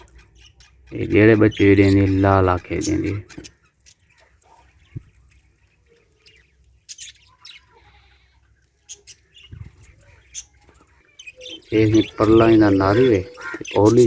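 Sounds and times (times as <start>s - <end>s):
budgerigars chirping: 0.0s - 14.0s.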